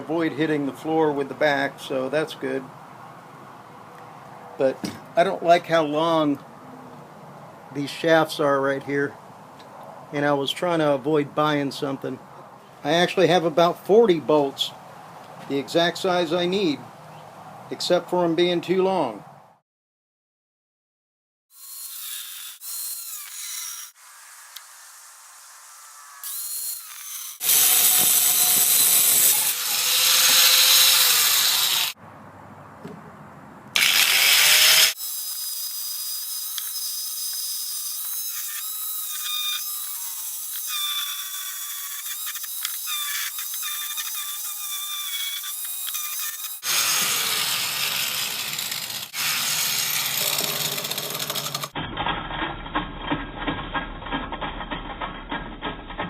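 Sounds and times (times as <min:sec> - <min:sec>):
electric power tool whining: 0:25.9 - 0:32.0, 0:33.8 - 0:35.0, 0:45.0 - 0:51.7.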